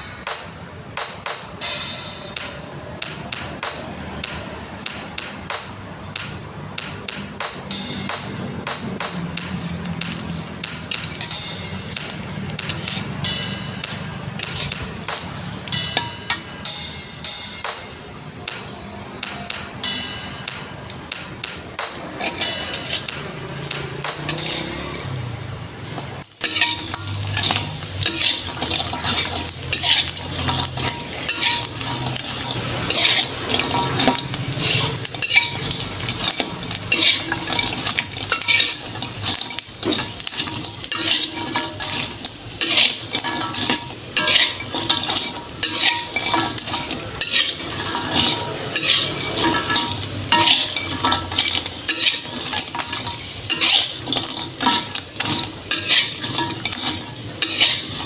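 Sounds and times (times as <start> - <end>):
frying sizzle: 0.0 - 58.0
utensil scraping in a pan: 9.5 - 16.1, 22.0 - 25.2, 25.8 - 58.0.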